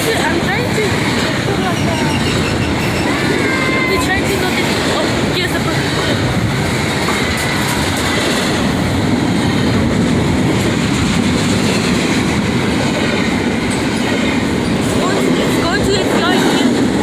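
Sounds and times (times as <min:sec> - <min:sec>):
train wheels on rail: 0:00.0 - 0:17.0.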